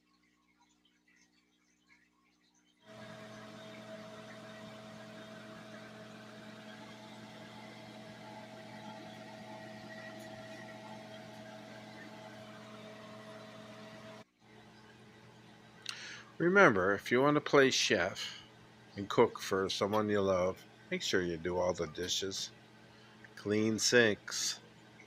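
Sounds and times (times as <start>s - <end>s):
machine hum with rushing hiss: 2.9s - 14.3s.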